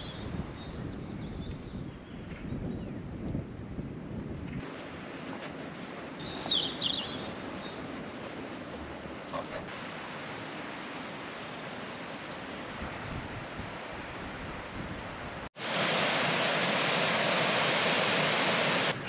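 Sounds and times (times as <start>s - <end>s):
steady outdoor hiss: 4.5s - 19.0s
bird chirping: 5.9s - 7.9s.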